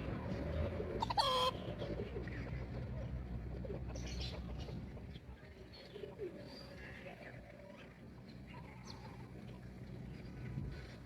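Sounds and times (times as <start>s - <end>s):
chickens clucking: 0.4s - 5.2s
chicken high calls: 1.0s - 1.6s.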